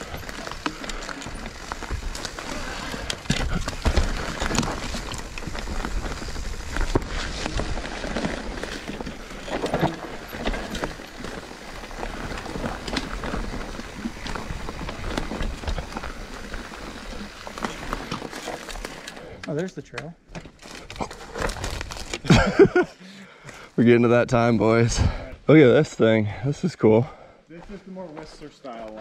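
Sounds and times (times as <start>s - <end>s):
bike rattling over bumps: 0.0s - 19.6s, 20.3s - 22.8s
bike tyres running over dirt: 0.0s - 22.9s, 28.1s - 29.0s.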